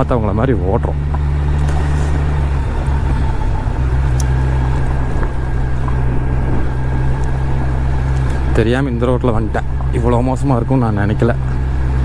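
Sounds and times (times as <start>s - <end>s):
motorcycle engine running: 0.0s - 12.0s
wind rushing: 0.9s - 10.6s.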